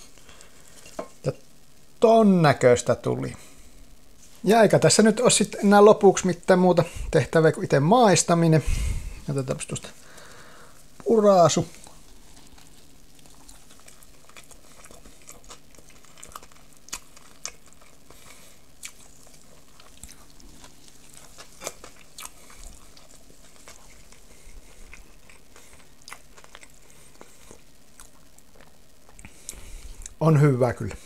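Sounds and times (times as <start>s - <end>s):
person chewing sandwich: 10.0s - 30.2s.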